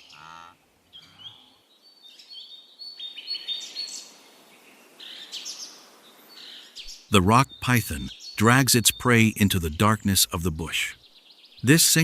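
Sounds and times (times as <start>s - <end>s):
faint outdoor background noise: 0.0s - 12.0s
birds chirping: 7.1s - 12.0s.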